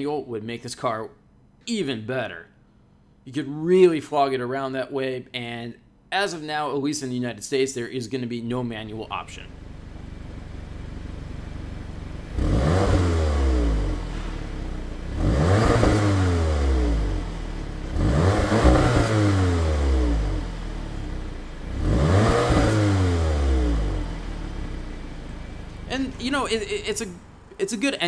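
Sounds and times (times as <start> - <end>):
car engine revving: 9.5 - 27.6.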